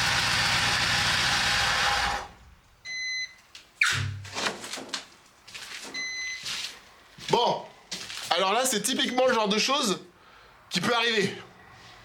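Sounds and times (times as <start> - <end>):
diesel engine running: 0.0 - 2.4
short electronic beep: 6.0 - 6.4.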